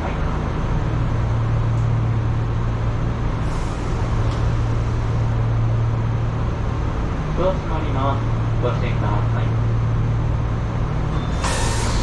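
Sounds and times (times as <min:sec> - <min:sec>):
electric train hum: 0:00.0 - 0:12.0
wheel and rail rumbling: 0:00.0 - 0:12.0
brief hiss: 0:11.4 - 0:12.0.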